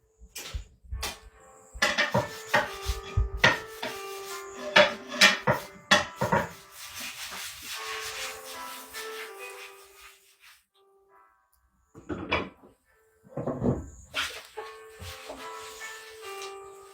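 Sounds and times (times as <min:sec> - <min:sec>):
rubbing and shuffling: 0:00.5 - 0:10.7, 0:13.8 - 0:16.9
hard objects knocking and clattering: 0:01.8 - 0:03.7.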